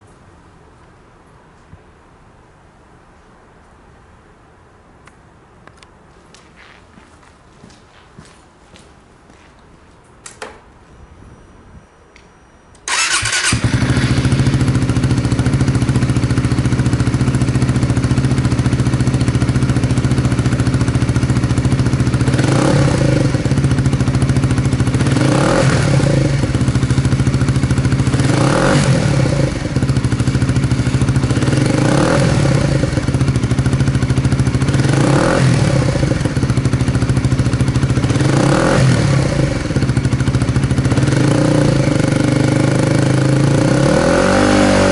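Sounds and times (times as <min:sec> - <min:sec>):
motorcycle engine starting and idling: 0:12.7 - 0:44.9
motorcycle engine revving: 0:12.9 - 0:44.9.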